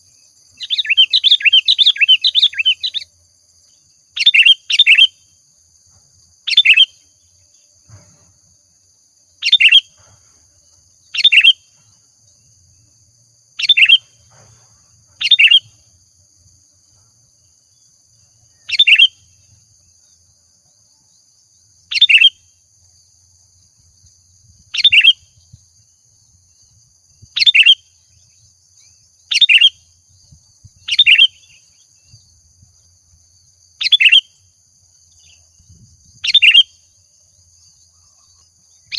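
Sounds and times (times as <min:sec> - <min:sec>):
bulbul whistled song: 0:00.5 - 0:03.1, 0:04.2 - 0:05.2, 0:06.5 - 0:07.0, 0:09.4 - 0:10.0, 0:11.2 - 0:11.7, 0:13.6 - 0:14.3, 0:15.2 - 0:15.8, 0:18.5 - 0:19.3, 0:21.9 - 0:22.5, 0:24.8 - 0:25.6, 0:27.3 - 0:28.0, 0:29.3 - 0:29.9, 0:30.7 - 0:32.2, 0:33.8 - 0:34.4, 0:36.2 - 0:36.8.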